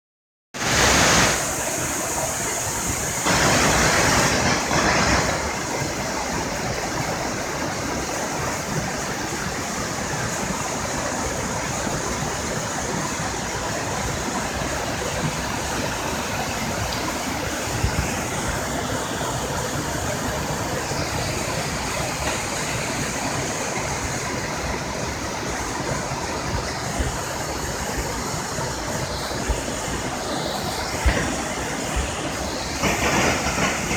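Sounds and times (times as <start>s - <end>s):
waterfall rushing: 0.6s - 33.9s.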